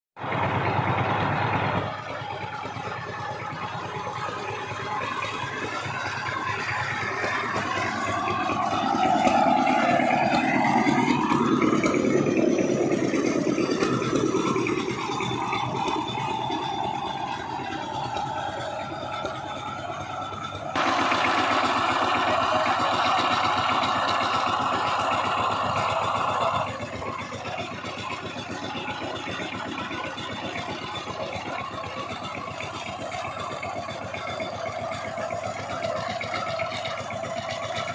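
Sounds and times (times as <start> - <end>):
tiller engine running: 0.2 - 37.9.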